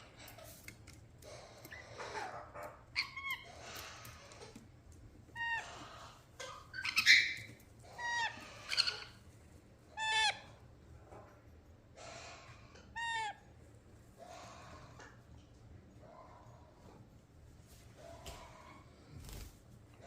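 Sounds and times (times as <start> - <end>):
parrots calling: 1.2 - 4.6, 5.3 - 9.3, 9.9 - 11.3, 12.0 - 13.6, 14.2 - 15.3
harsh parrot squawk: 10.0 - 10.6.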